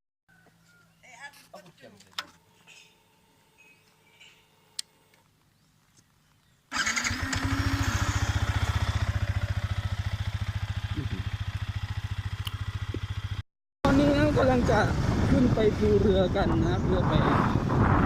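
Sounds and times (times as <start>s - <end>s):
motorcycle engine running: 6.7s - 18.0s.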